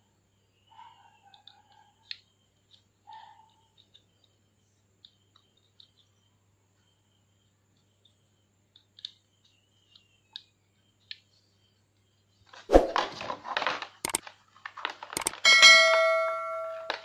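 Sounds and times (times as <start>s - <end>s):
plastic tray crackling: 12.5s - 15.5s
sharp double click effect: 15.2s - 15.7s
clicks and taps handling cables: 16.7s - 17.0s.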